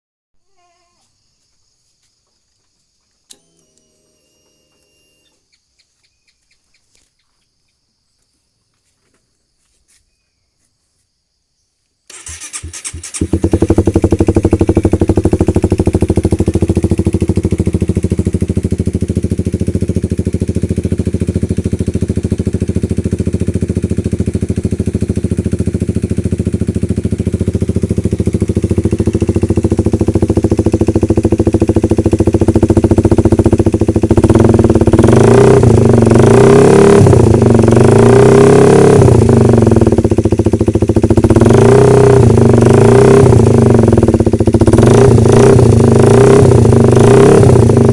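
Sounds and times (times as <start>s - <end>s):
motorcycle engine idling and revving: 12.1s - 47.9s.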